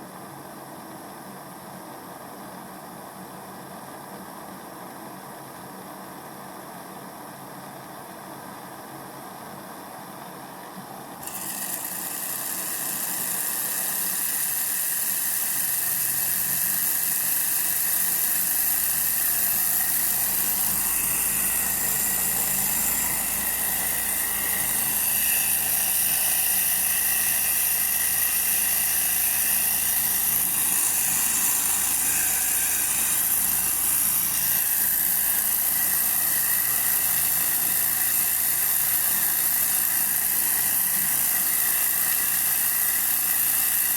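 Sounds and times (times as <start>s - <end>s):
model engine high-pitched whir: 11.2s - 43.9s.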